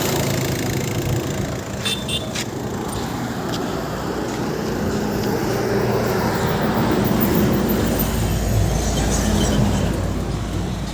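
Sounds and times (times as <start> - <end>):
car engine running: 0.0 - 5.6.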